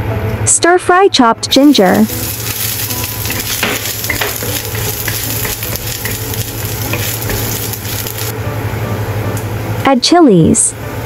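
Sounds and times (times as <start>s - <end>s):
ginger sizzling in hot oil: 1.5s - 8.4s
wooden spatula scraping wok: 1.6s - 8.3s.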